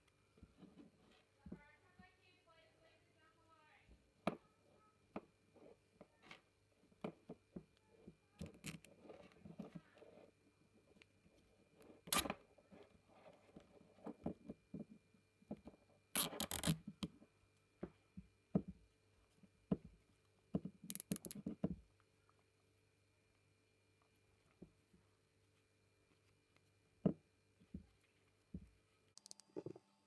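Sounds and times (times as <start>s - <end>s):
small parts scraping and clicking: 20.9s - 21.4s, 29.2s - 30.0s.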